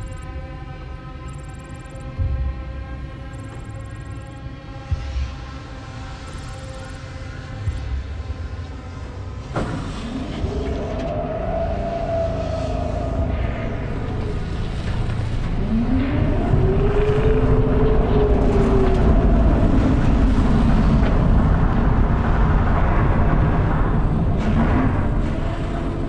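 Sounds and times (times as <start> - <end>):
wailing alarm tone: 1.2 - 2.2
heavy low rumble: 2.1 - 26.0.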